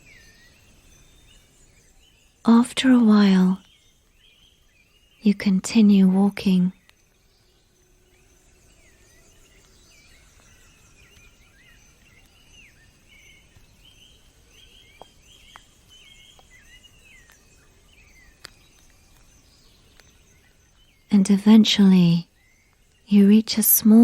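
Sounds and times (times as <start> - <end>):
low steady hiss: 0.0 - 24.0
small birds chirping: 0.0 - 24.0
faint clicks: 9.5 - 20.9.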